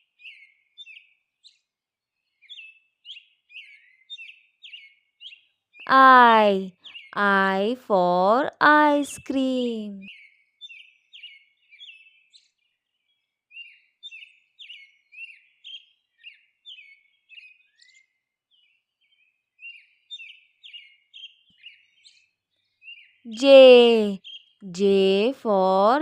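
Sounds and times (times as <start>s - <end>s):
small birds chirping: 0.0s - 9.0s, 9.6s - 26.0s.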